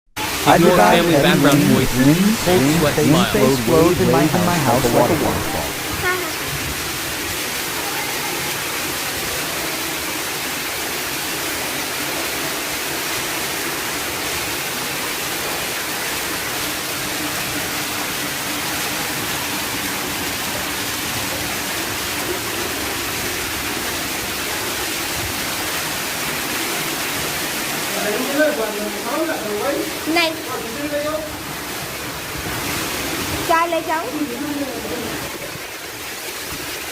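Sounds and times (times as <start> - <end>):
heavy rain: 0.3 - 11.2.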